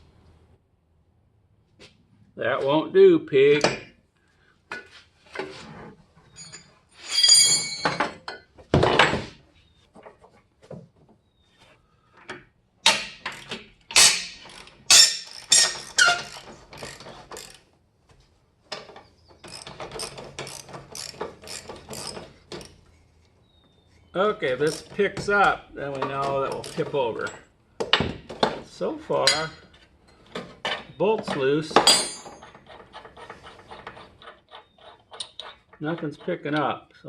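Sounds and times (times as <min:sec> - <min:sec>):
metal clanks and knocks: 0:06.4 - 0:10.9, 0:12.2 - 0:17.6, 0:24.6 - 0:36.7.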